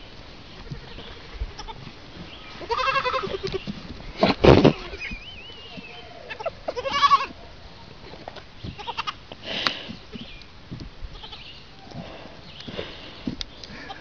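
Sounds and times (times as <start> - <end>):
animal bleating: 0.6 - 1.9, 2.5 - 3.7, 4.6 - 7.4, 8.7 - 9.2, 11.1 - 11.6.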